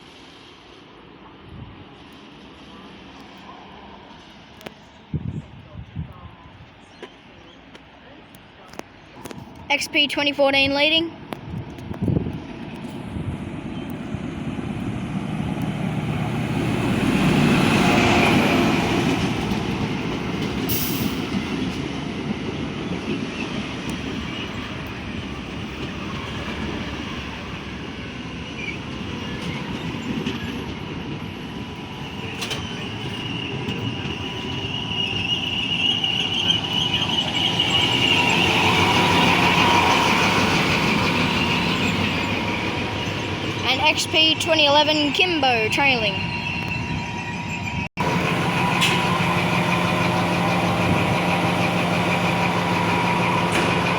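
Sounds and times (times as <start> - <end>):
carriages rolling on rails: 11.2 - 53.9
diesel train engine running: 12.1 - 29.3, 30.4 - 53.9
train brake squeal: 20.7 - 21.4, 31.8 - 43.3, 46.1 - 47.9.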